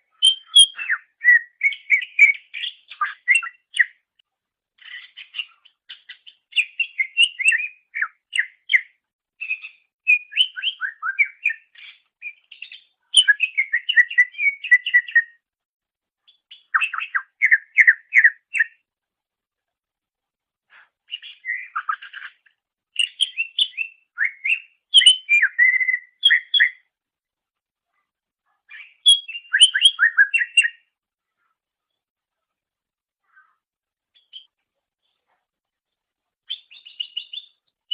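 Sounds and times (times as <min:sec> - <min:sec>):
bird chirping and whistling: 0:00.2 - 0:03.9, 0:05.0 - 0:08.8, 0:09.4 - 0:15.4, 0:16.6 - 0:18.8, 0:21.1 - 0:22.4, 0:23.0 - 0:26.8, 0:28.7 - 0:30.8, 0:36.5 - 0:37.6.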